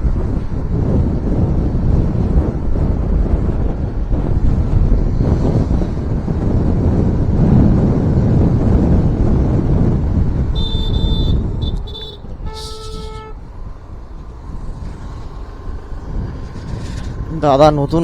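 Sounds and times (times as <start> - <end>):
car road noise and wind rumble: 0.0 - 18.0
vehicle horns honking: 10.5 - 13.6.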